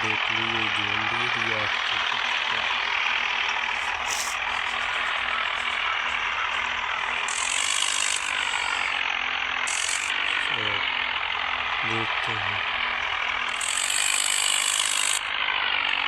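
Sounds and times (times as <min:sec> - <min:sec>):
tractor engines under heavy load: 0:00.0 - 0:16.0
high hissing bursts: 0:03.8 - 0:04.4.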